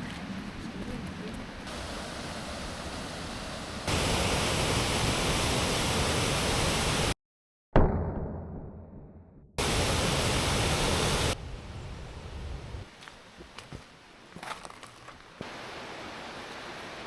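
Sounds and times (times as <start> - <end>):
waterfall rushing: 1.7 - 7.1, 14.7 - 17.0.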